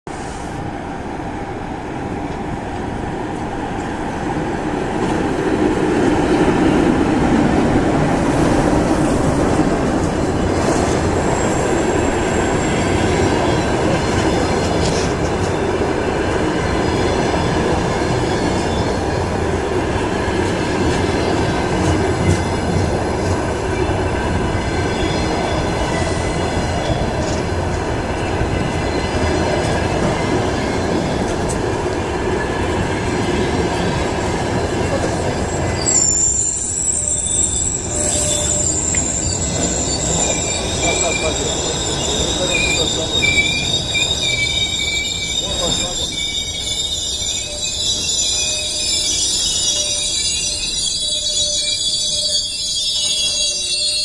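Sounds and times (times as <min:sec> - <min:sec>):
train rolling rumble: 0:00.1 - 0:53.9
wheel and brake squeals: 0:34.8 - 0:54.0.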